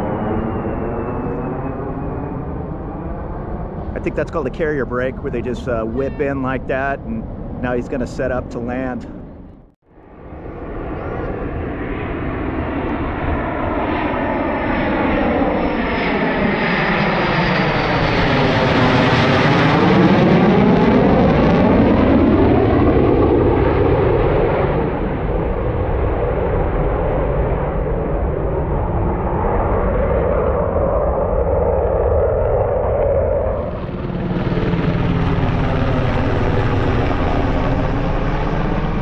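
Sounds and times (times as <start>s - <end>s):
aircraft flying low past: 0.0s - 39.0s.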